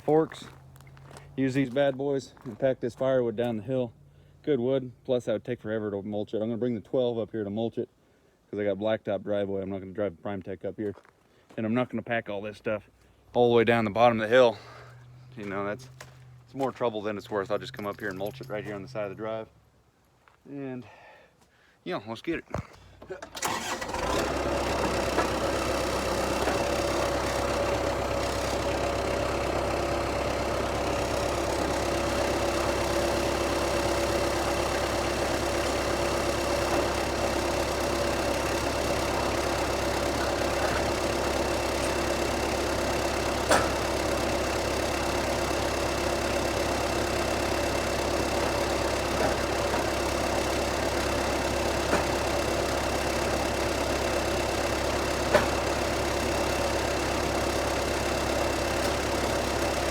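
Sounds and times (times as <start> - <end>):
diesel engine idling: 13.6 - 19.4, 22.8 - 59.9.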